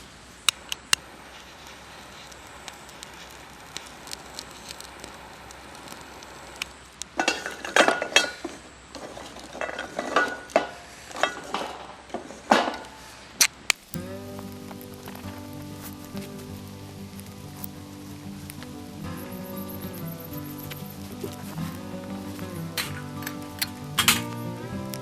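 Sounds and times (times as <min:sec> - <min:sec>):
light steady hiss: 0:00.0 - 0:25.0
metal camping gear clinking: 0:07.2 - 0:12.0, 0:14.0 - 0:25.0.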